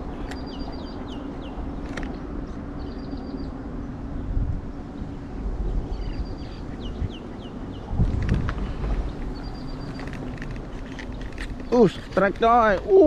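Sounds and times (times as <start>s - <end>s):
distant traffic: 0.0s - 13.0s
songbird trilling and whistling: 0.2s - 1.6s
wind on microphone: 2.6s - 12.2s.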